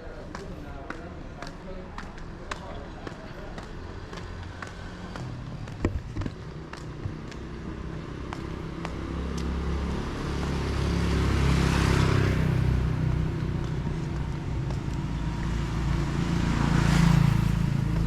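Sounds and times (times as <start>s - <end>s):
vehicle passing close: 4.0s - 18.0s.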